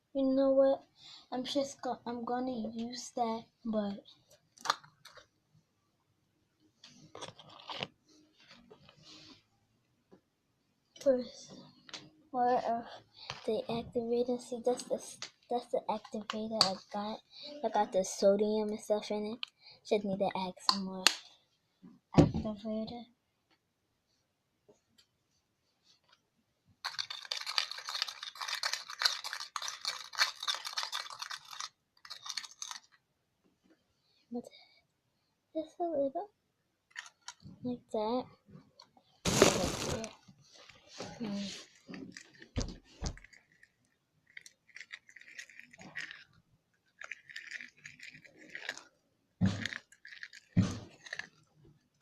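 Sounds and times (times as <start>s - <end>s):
slime being stirred and squished: 6.9s - 8.0s, 39.3s - 40.1s, 40.8s - 51.6s.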